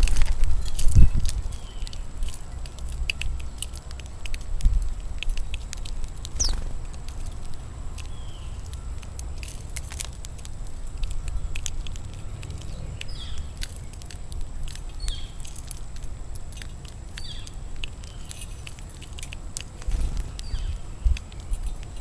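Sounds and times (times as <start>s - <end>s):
bird chirping: 0.0s - 3.8s, 5.4s - 9.7s, 10.8s - 15.8s, 16.5s - 22.0s
beaks and feet tapping feeder: 0.1s - 22.0s
low rumble: 6.2s - 16.1s.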